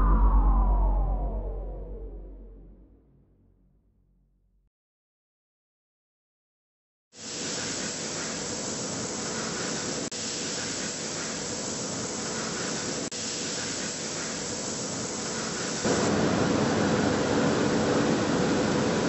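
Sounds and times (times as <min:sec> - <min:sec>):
workshop machinery hiss and hum: 0:07.2 - 0:19.0.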